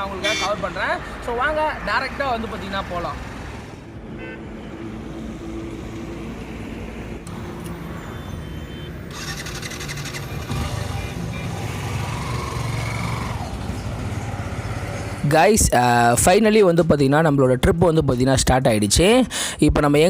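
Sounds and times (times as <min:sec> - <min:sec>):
road noise: 0:00.0 - 0:20.0
motorcycle engine running: 0:09.1 - 0:15.1.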